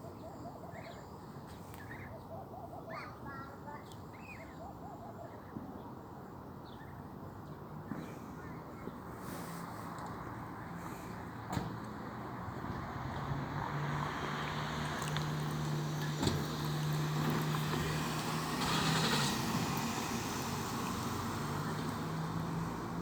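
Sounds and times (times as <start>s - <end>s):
outdoor background noise: 0.0s - 23.0s
vehicle engine humming: 11.9s - 23.0s.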